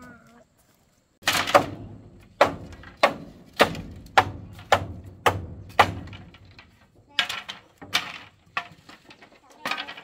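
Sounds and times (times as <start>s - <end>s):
chopping on wood: 1.2s - 6.4s.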